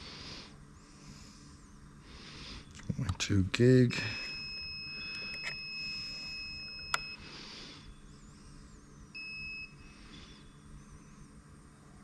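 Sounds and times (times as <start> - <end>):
short beep: 4.0 - 7.2.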